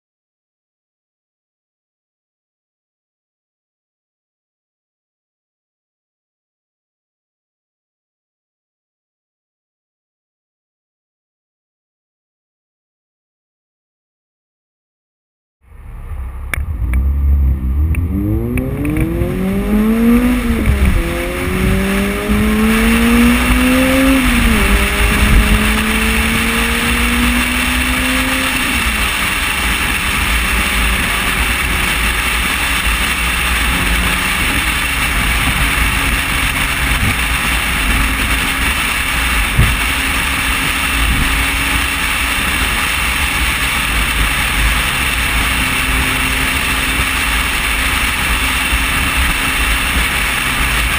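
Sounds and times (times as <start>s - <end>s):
car engine accelerating: 15.6s - 50.9s
wind and road noise: 15.6s - 50.9s.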